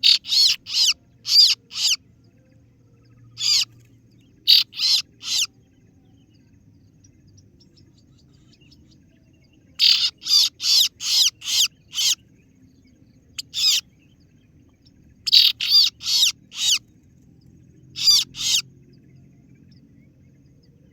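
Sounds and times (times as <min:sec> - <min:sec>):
sharp bird calls: 0:00.0 - 0:02.0, 0:03.3 - 0:03.8, 0:04.4 - 0:05.6, 0:09.7 - 0:12.4, 0:13.4 - 0:14.0, 0:15.2 - 0:16.9, 0:17.9 - 0:18.7.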